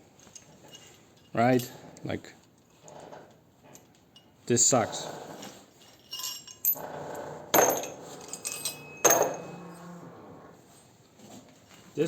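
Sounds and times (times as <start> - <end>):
steel parts clanking: 7.6 - 9.8.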